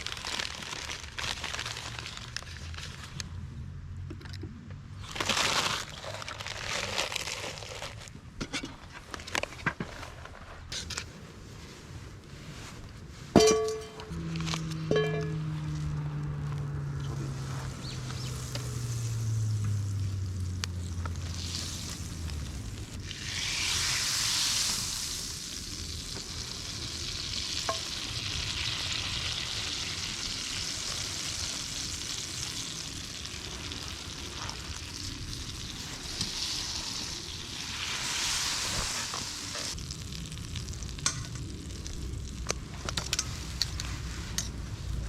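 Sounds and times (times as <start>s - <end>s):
sizzling hiss: 17.3s - 45.0s.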